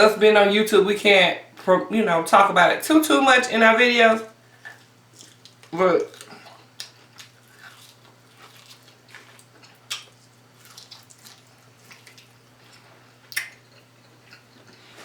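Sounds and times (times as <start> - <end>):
wet chewing sounds: 4.6 - 15.0.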